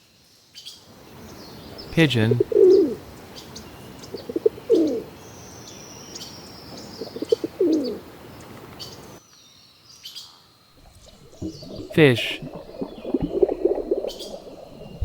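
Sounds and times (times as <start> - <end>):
pigeon cooing: 2.3 - 3.0, 4.1 - 5.1, 7.0 - 8.0.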